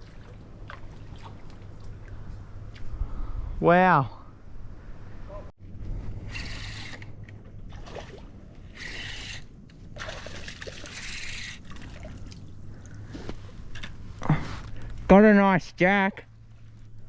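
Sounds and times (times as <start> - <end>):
fish thrashing water splashing: 0.0 - 2.2, 10.0 - 12.5.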